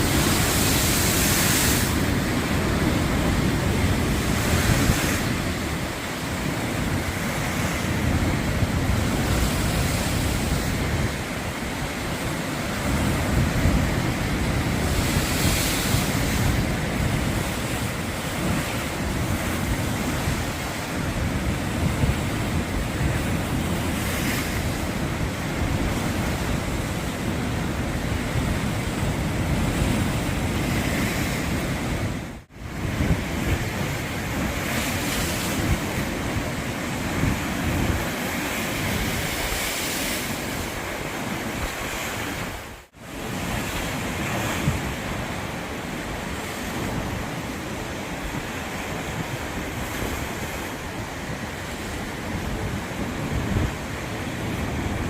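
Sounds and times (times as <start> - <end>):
sea waves washing onto shore: 0.0 - 55.0
wind buffeting the microphone: 0.0 - 55.0.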